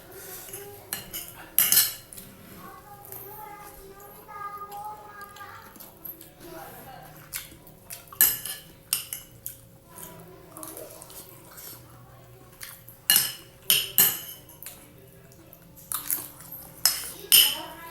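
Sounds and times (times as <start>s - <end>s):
cutlery clinking on a plate: 0.4s - 2.2s, 7.2s - 10.8s, 12.7s - 14.9s, 15.8s - 17.8s.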